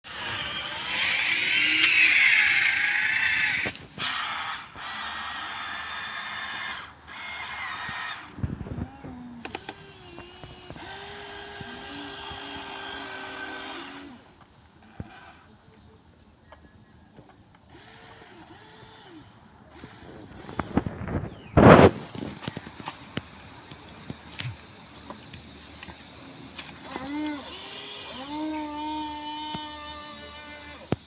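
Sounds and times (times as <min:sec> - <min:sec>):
small electric motors whining: 0:00.0 - 0:15.5, 0:17.6 - 0:31.0.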